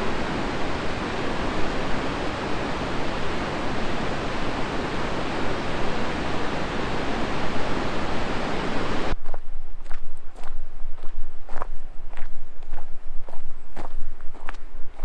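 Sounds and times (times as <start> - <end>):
river water rushing: 0.0 - 9.2.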